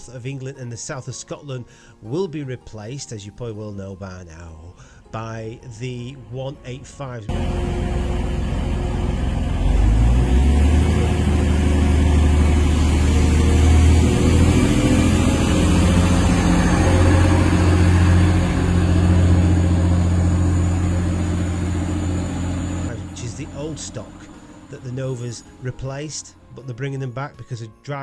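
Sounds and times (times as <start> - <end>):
diesel train engine running: 7.3 - 26.6.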